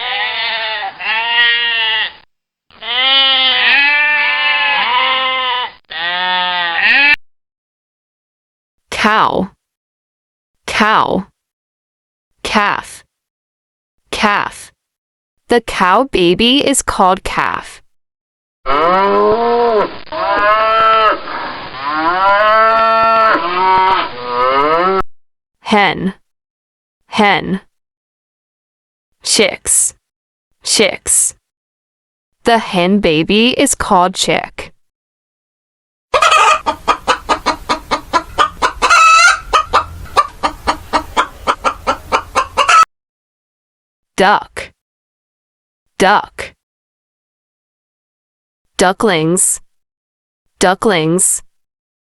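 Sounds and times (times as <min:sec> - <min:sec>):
hen drawn-out call: 0:00.0 - 0:07.2, 0:36.1 - 0:42.9
cattle mooing: 0:02.8 - 0:07.2, 0:21.8 - 0:25.0
hen clucking rapidly: 0:36.1 - 0:42.9.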